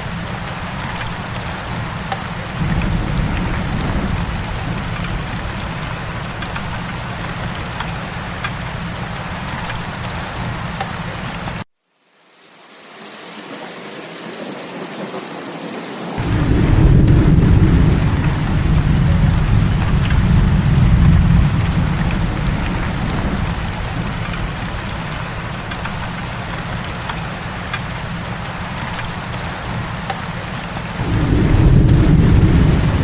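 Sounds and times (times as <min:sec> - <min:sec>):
heavy rain: 0:00.0 - 0:11.7, 0:12.3 - 0:33.0
low rumble: 0:16.2 - 0:25.6, 0:31.0 - 0:33.0.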